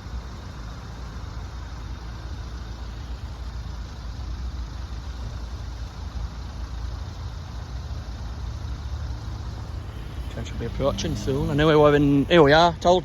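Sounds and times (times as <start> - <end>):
vehicle engines idling: 0.0 - 13.0.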